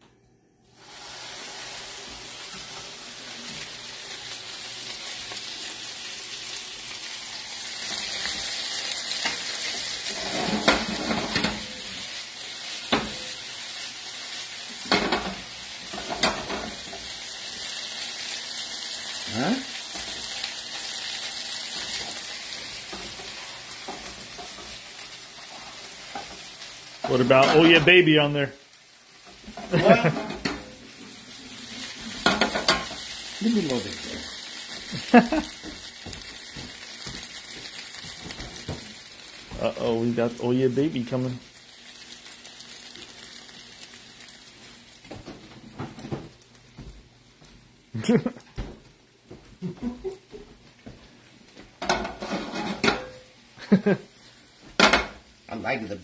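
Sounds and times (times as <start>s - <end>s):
food sizzling in a frying pan: 0.6s - 56.0s
spoon knocking and scraping pan: 9.2s - 11.7s, 12.9s - 13.3s, 14.8s - 17.1s, 21.7s - 24.8s, 25.5s - 26.5s, 29.3s - 30.8s, 32.1s - 33.1s, 51.8s - 53.2s, 54.8s - 55.2s.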